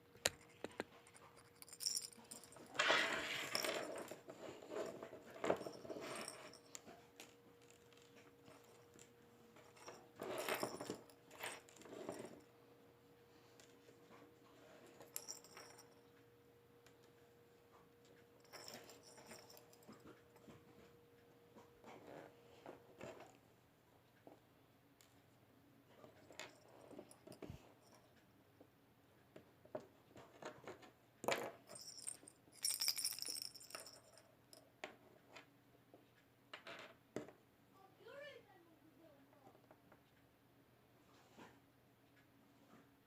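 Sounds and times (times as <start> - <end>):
handling clicks and knocks: 0.2 - 2.8, 30.4 - 34.2
metallic clinking: 0.2 - 4.2, 14.9 - 16.0, 18.4 - 20.2, 31.7 - 34.2
metallic clinks and rattles: 0.2 - 12.5, 14.7 - 16.2, 18.4 - 20.6, 26.1 - 28.1, 31.2 - 34.7.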